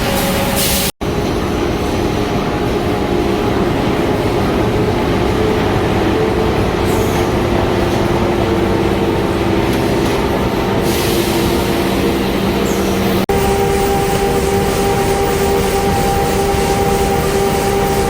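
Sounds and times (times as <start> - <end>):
machinery mechanical drone: 0.0 - 18.0
hiss: 10.8 - 18.0.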